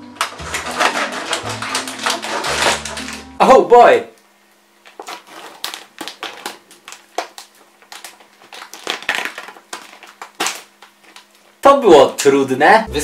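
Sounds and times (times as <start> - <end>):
plastic packaging crackling: 0.0 - 3.6, 4.3 - 12.1
faint steady hum: 2.6 - 13.0.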